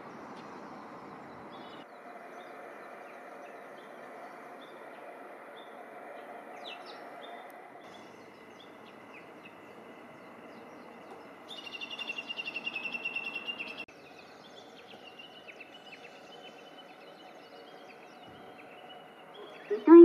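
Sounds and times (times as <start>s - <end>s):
small birds chirping: 0.0s - 20.0s
steady outdoor hiss: 0.0s - 20.0s.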